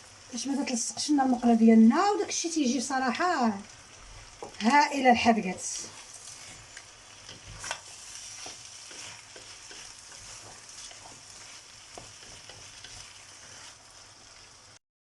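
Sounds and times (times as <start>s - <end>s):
food sizzling in a pan: 0.0s - 14.8s
spoon tapping and scraping pan: 4.4s - 4.7s, 5.5s - 13.8s.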